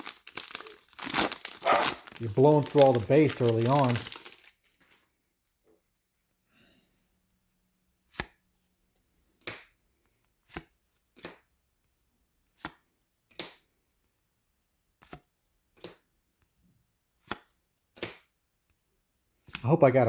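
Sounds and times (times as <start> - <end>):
trading cards snapping: 0.3 - 4.5.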